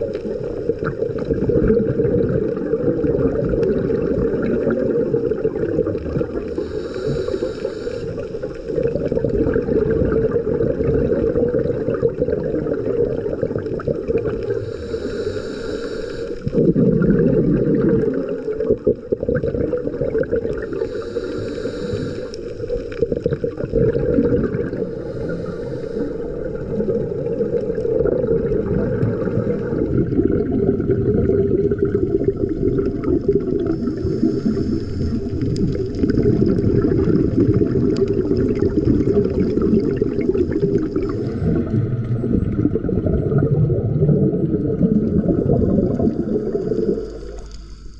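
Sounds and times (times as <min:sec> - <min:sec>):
bubbling exhalation: 0:00.0 - 0:15.4, 0:16.4 - 0:47.5
underwater water and bubbles rush: 0:00.0 - 0:47.9
regulator hiss: 0:06.5 - 0:08.7, 0:14.5 - 0:16.5, 0:20.7 - 0:23.0, 0:24.7 - 0:26.9, 0:33.7 - 0:35.8.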